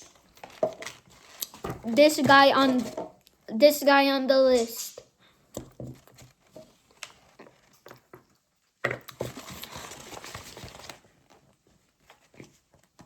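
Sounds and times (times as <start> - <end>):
paper rustling: 0.0 - 3.0, 9.2 - 12.6.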